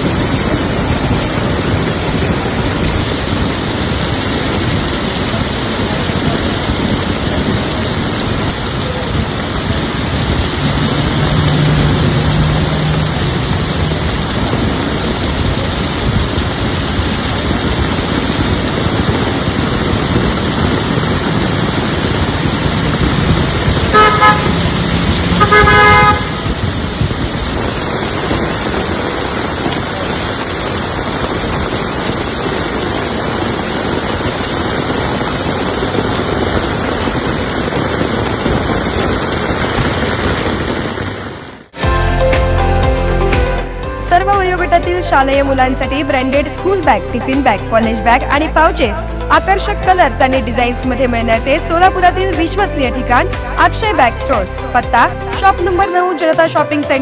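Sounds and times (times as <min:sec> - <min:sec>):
heavy rain: 0:00.0 - 0:57.0
road traffic: 0:00.0 - 0:57.0
vehicle horn honking: 0:23.8 - 0:26.6.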